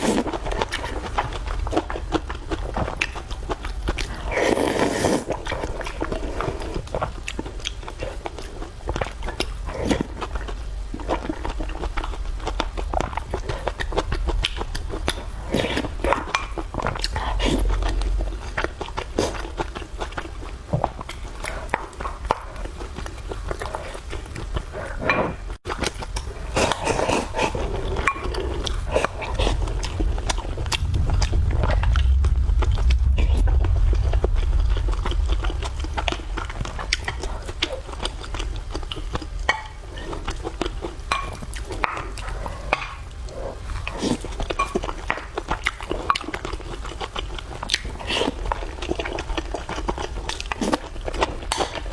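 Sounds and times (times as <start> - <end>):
person chewing food: 0.0 - 51.9
low rumble: 9.5 - 20.2, 27.5 - 39.4.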